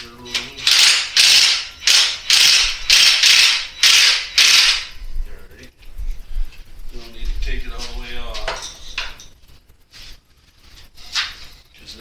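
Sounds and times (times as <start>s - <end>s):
ratchet wrench clicking: 0.6s - 4.9s.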